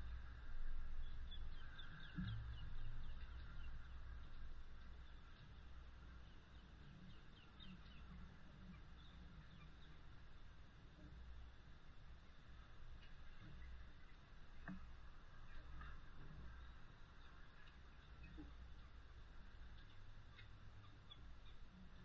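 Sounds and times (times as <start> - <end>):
low steady rumble: 0.0 - 22.0
birds chirping: 1.0 - 12.4, 13.1 - 22.0
light rain: 7.7 - 22.0.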